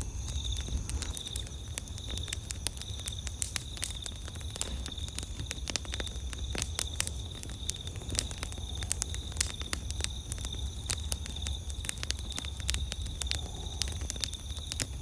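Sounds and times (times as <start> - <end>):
high-pitched insect trill: 0.0 - 4.2
campfire crackling and popping: 0.0 - 15.0.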